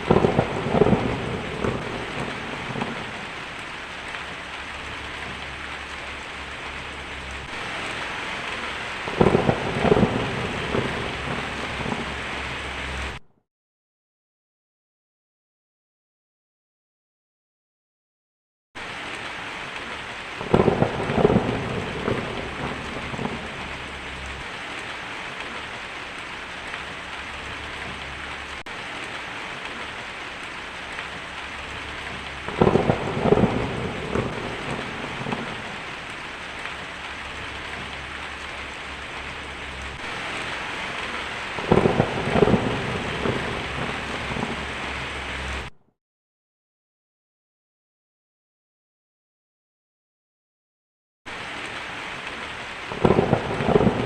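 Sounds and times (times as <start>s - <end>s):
heavy rain: 0.0s - 13.2s, 18.8s - 45.8s, 51.3s - 54.0s
thunder rumbling: 0.0s - 13.2s, 18.8s - 45.7s, 52.8s - 54.0s.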